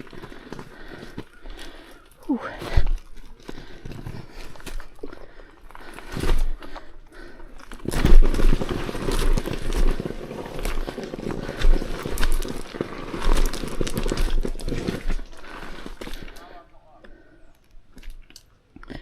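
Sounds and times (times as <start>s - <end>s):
tyres crunching over rocks: 0.0s - 19.0s.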